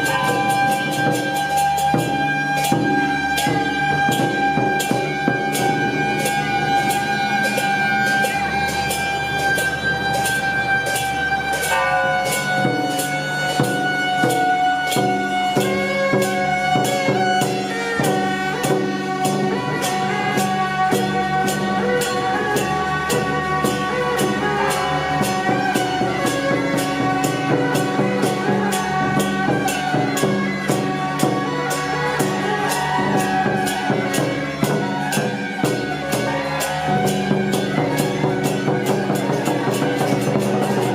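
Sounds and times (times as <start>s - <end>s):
held melody notes: 0.0s - 15.4s
sharp percussion strikes: 0.0s - 40.9s.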